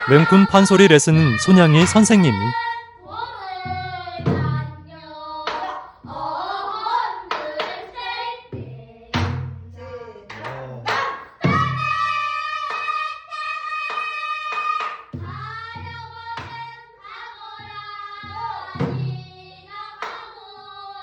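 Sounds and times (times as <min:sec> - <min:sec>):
drum knocks and thuds: 0:03.6 - 0:04.7.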